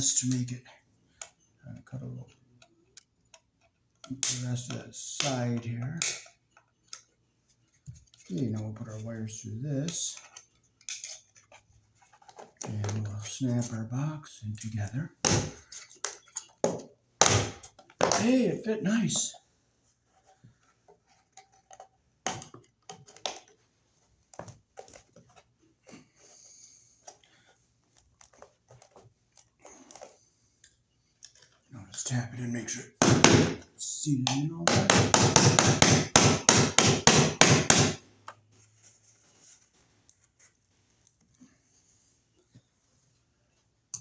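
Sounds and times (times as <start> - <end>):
clicks and knocks of handling: 2.2 - 8.4, 9.9 - 13.3, 15.2 - 17.0, 20.0 - 26.1, 27.0 - 31.7
rapid tapping on outlet box: 34.7 - 38.0.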